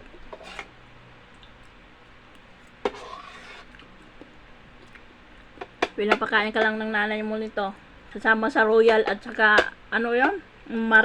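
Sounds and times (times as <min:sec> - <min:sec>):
quiet eating sounds: 0:00.0 - 0:06.3
slurp: 0:02.9 - 0:03.9.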